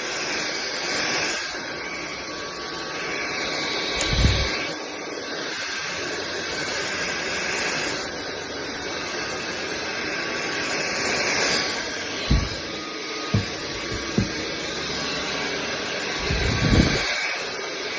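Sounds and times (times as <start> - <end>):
stick vacuum running: 1.2 - 5.8, 7.7 - 17.8
low thump: 12.3 - 12.6, 13.4 - 14.4.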